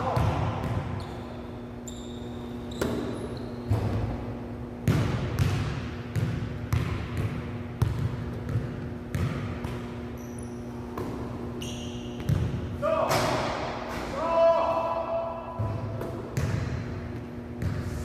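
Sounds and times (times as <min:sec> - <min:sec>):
basketball bouncing on court floor: 0:00.0 - 0:01.1, 0:02.7 - 0:04.2, 0:04.8 - 0:13.5, 0:15.6 - 0:17.9
short high squeaks: 0:01.0 - 0:03.7, 0:10.2 - 0:10.8, 0:11.6 - 0:12.2.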